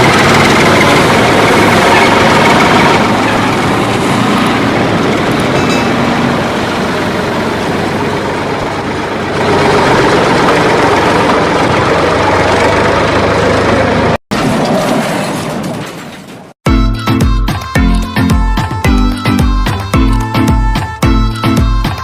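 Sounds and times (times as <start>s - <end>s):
vehicle engine running: 0.0s - 14.2s.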